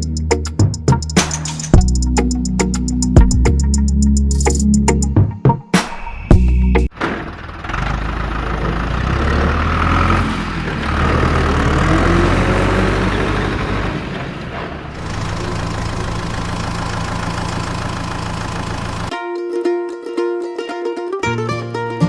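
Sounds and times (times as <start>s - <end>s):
small engine running: 14.9s - 19.1s.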